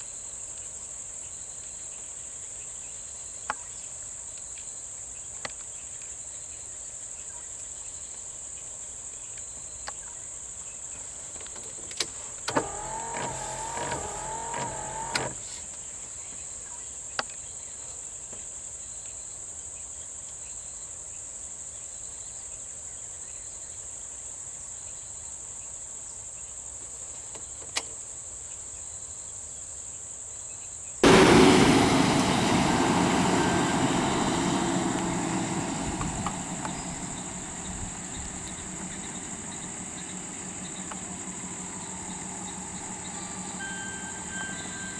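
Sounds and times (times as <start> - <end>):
insects chirring chorus: 32.6 - 44.9.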